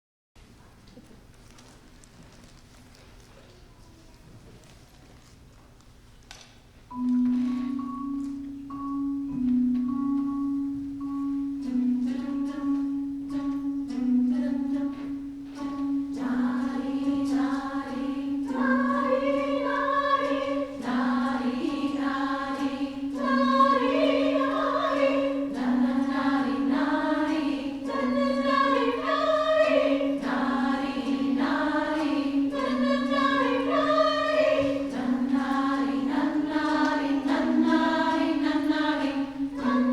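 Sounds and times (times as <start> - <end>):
rhythmic percussion: 6.9 - 39.9
women's chorus singing: 12.0 - 39.9.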